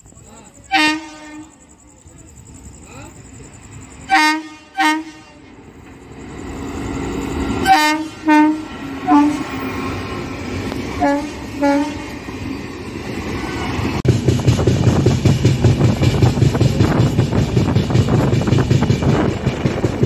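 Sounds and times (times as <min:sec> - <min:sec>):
train rumbling past: 0:00.0 - 0:20.0
train horn blasts: 0:00.7 - 0:01.6, 0:04.0 - 0:05.6, 0:07.6 - 0:10.0, 0:11.0 - 0:12.2
wheels clattering on rail joints: 0:05.3 - 0:20.0.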